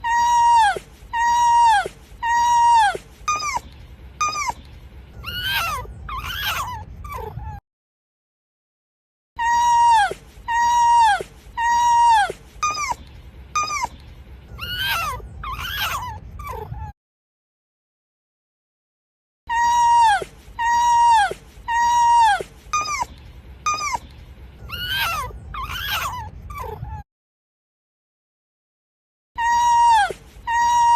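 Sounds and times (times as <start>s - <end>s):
fox crying and yelping: 0.0s - 7.6s, 9.4s - 17.0s, 19.5s - 27.0s, 29.4s - 30.9s.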